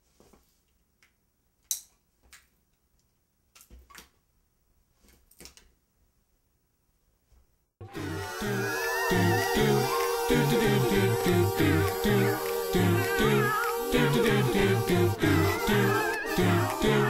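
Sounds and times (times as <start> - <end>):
music: 7.8 - 17.0.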